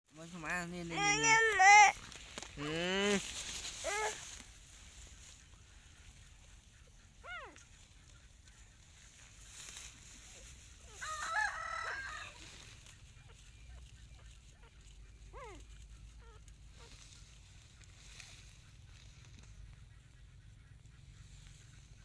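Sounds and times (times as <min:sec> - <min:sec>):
rooster crowing: 0:10.9 - 0:12.6.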